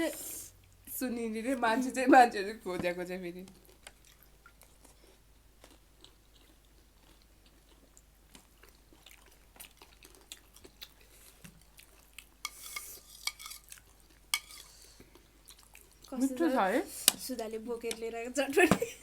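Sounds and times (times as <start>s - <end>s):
chewing: 3.5s - 16.2s.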